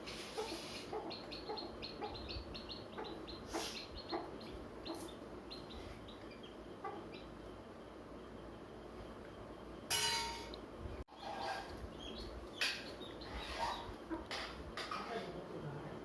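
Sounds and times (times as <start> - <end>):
hen clucking: 0.1 - 7.4, 11.1 - 14.5
chicks peeping: 0.1 - 7.5, 11.1 - 14.4.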